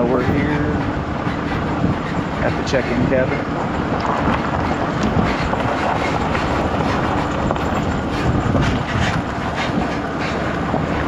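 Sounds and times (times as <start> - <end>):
truck engine low rumble: 0.0 - 11.0
clattering rattles: 3.9 - 9.3.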